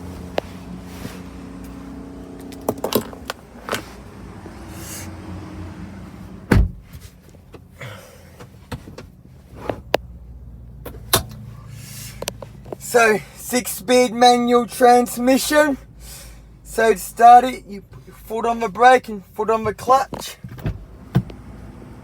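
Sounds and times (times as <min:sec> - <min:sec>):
low hum of background traffic: 0:00.0 - 0:22.0
clicks and knocks in car cabin: 0:02.4 - 0:03.9, 0:06.4 - 0:10.1, 0:10.8 - 0:11.4, 0:19.5 - 0:21.4
heavy low thump: 0:06.4 - 0:07.0.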